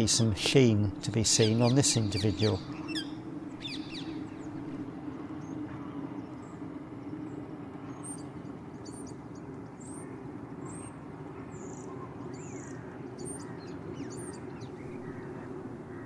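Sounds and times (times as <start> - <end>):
parakeets shrill calls: 0.4 - 4.8.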